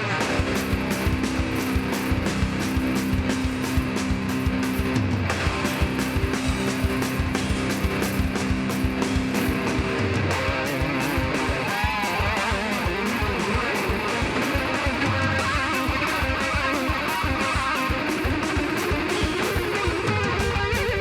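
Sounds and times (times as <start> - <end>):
bass guitar: 0.0 - 21.0
distorted electric guitars: 0.0 - 21.0
fast driving drums: 0.0 - 21.0.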